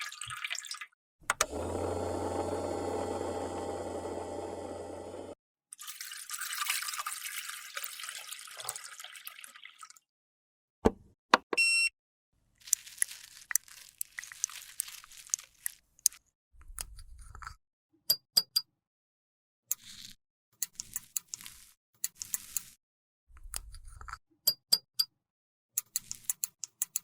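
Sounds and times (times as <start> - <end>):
short beep: 11.6 - 11.9
scraping and crackling: 12.6 - 16.2.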